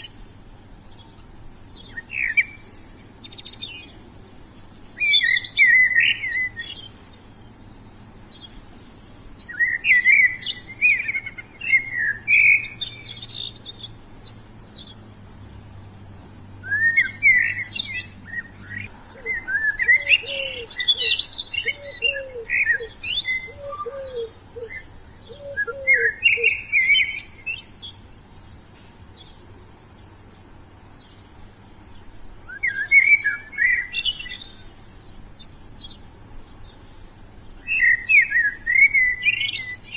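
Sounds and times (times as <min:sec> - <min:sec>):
songbirds chirping: 0:00.0 - 0:39.9
low bird call: 0:16.2 - 0:30.2.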